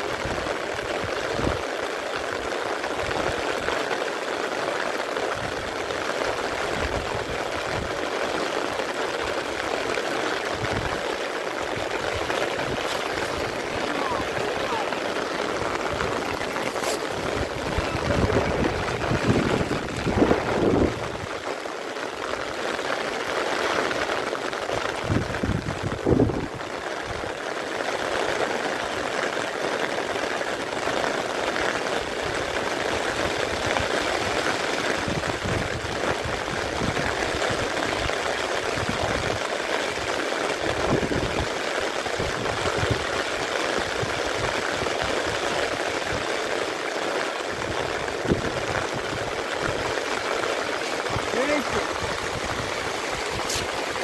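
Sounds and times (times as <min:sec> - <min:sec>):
heavy rain on floodwater: 0:00.0 - 0:54.0
low rushes: 0:11.7 - 0:21.3.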